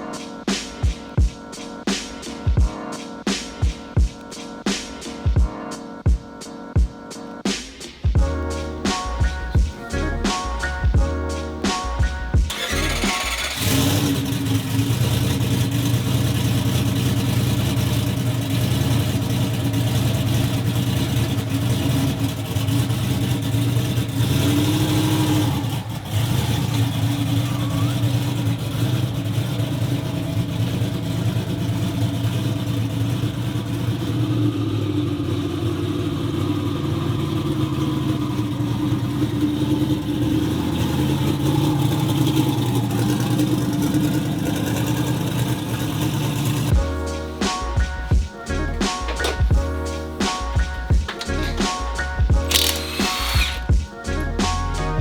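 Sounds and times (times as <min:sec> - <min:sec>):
vehicle engine running: 0:08.2 - 0:55.0.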